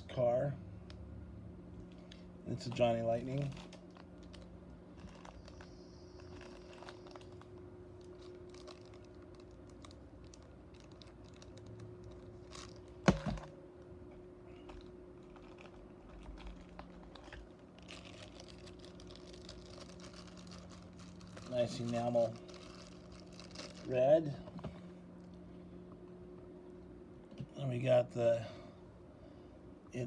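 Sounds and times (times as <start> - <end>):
steady low hum: 0.0 - 30.0
plastic packaging rustling: 2.6 - 13.5, 14.6 - 24.1.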